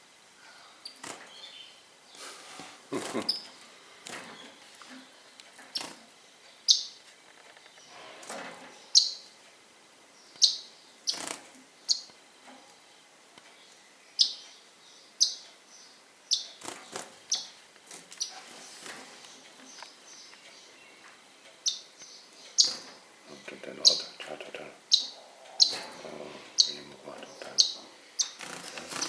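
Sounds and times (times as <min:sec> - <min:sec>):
birds chirping: 0:00.4 - 0:29.0.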